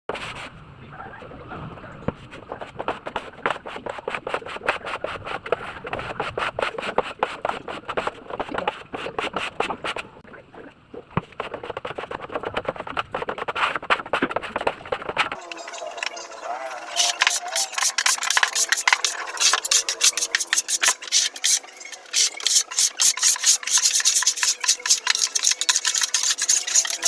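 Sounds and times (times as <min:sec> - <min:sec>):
scraping and rubbing strokes: 0:00.1 - 0:00.6, 0:02.1 - 0:10.2, 0:11.2 - 0:27.0.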